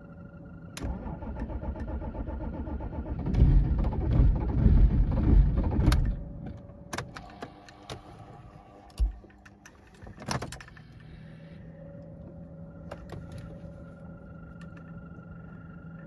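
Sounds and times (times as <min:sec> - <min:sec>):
engine starter click: 0:00.8 - 0:04.6
diesel engine cranking and firing: 0:00.8 - 0:06.4.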